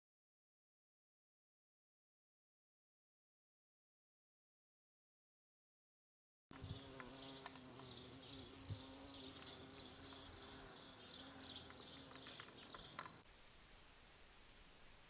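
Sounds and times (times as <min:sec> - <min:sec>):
small bird chirping: 0:06.6 - 0:13.3
faint hiss: 0:13.2 - 0:15.0
low steady buzz: 0:13.3 - 0:15.0.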